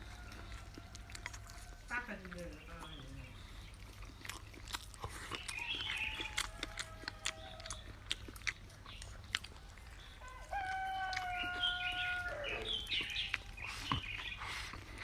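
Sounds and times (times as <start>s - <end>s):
rooster crowing: 5.6s - 7.9s, 9.7s - 12.9s.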